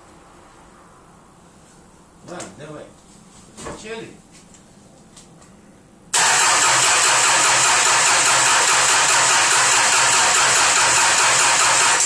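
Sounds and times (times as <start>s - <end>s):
diesel engine cranking on starter: 6.2s - 12.0s.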